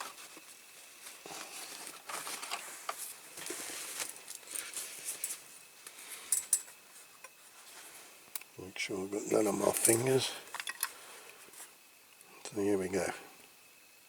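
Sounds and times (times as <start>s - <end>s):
rustling and scraping of handling: 0.0s - 8.4s, 9.1s - 11.8s.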